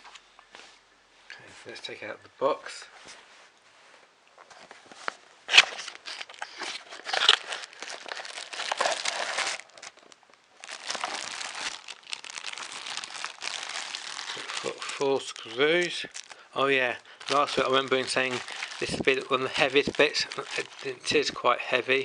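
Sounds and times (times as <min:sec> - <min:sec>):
packaging crinkling and rustling: 0:04.4 - 0:21.9.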